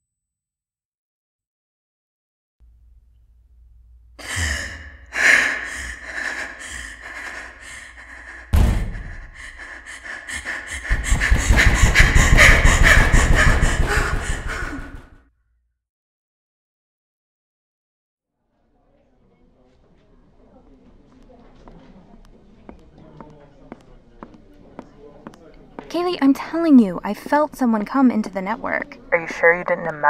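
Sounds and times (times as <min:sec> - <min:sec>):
car crash impacts: 0:08.6 - 0:09.1.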